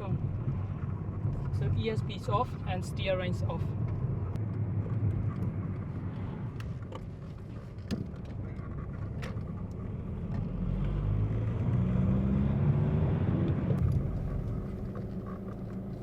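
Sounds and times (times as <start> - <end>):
diesel engine and road rumble: 0.0 - 16.0.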